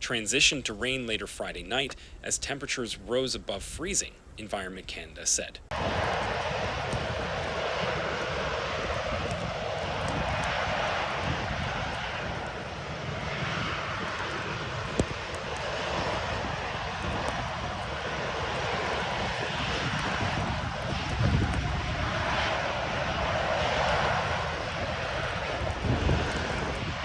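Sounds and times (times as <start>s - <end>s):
low rumble: 5.6s - 27.0s
winter storm roar: 5.6s - 27.0s.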